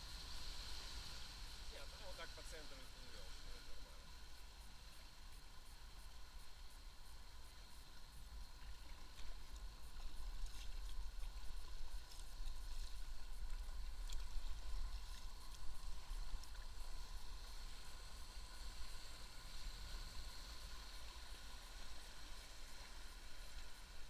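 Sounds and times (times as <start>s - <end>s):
water rushing and splashing: 7.4s - 24.0s.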